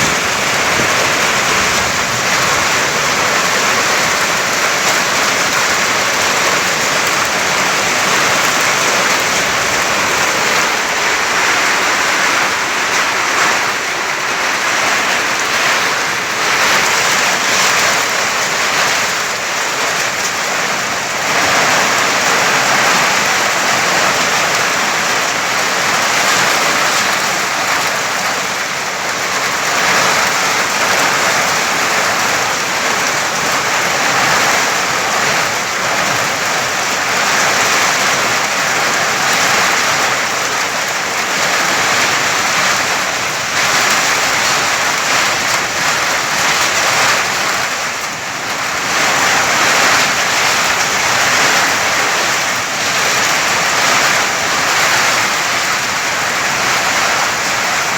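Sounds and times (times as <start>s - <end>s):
wind and blowing sand: 0.0s - 24.4s.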